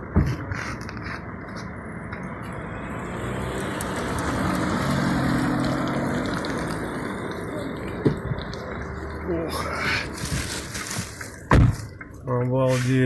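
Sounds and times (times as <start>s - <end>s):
car engine running: 1.8s - 12.1s.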